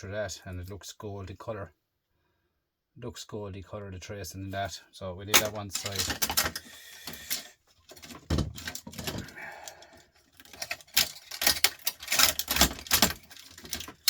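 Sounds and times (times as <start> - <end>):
metal and plastic parts clicking: 5.3 - 14.0.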